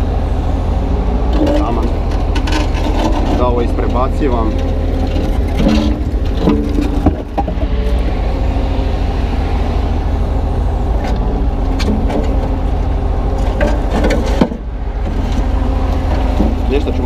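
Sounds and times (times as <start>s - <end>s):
excavator diesel engine running: 0.0s - 17.0s
concrete chunks knocking: 4.6s - 7.7s.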